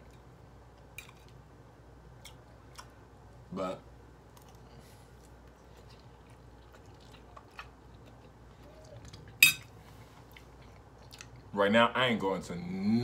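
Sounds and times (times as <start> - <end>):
faint chewing: 2.2 - 3.0, 4.3 - 11.5.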